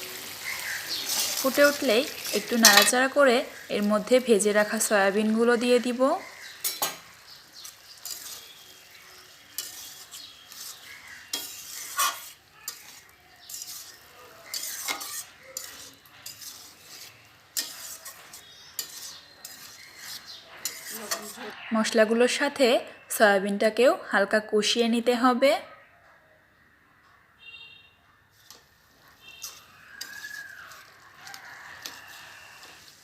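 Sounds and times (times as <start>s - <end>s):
food sizzling: 0.0s - 22.7s, 28.3s - 33.0s
spatula stirring spice paste: 0.1s - 21.6s, 28.3s - 33.0s.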